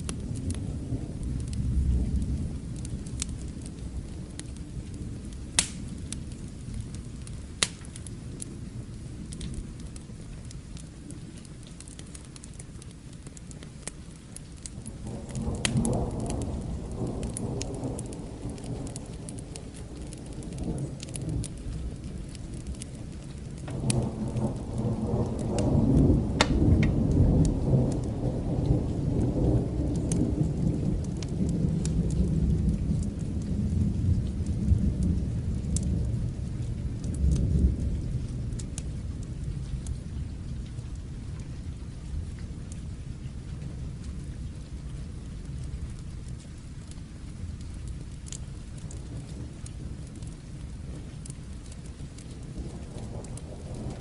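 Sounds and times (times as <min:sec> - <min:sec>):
steady rain: 0:00.0 - 0:54.0
thunder rolling: 0:14.8 - 0:39.8, 0:51.9 - 0:54.0.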